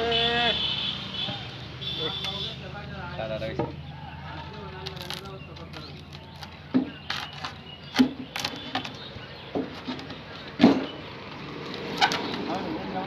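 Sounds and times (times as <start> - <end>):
knocks and thuds: 5.2 - 11.1.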